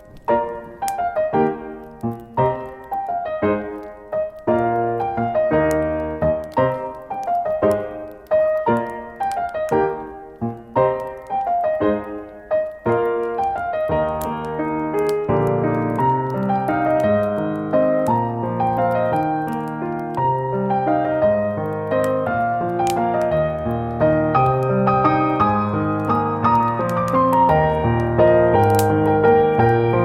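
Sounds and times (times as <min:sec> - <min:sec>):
faint campfire crackling: 0:00.0 - 0:30.0
gentle piano music: 0:00.0 - 0:30.0.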